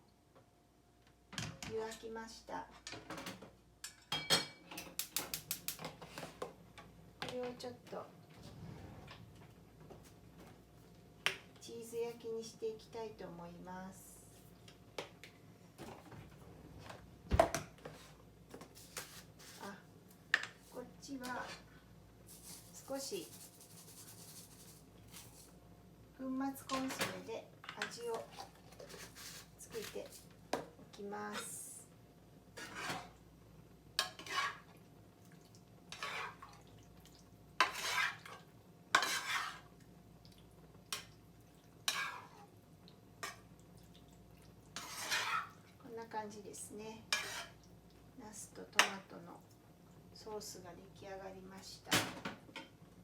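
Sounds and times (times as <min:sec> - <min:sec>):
utensil stirring thick sauce: 0:34.0 - 0:34.8, 0:35.9 - 0:36.6, 0:37.6 - 0:39.8, 0:41.9 - 0:42.5, 0:44.7 - 0:45.6.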